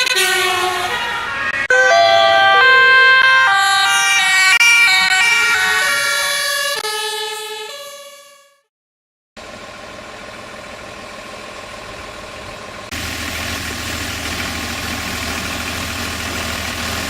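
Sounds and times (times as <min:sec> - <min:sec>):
two-tone emergency sirens: 0:00.0 - 0:08.7.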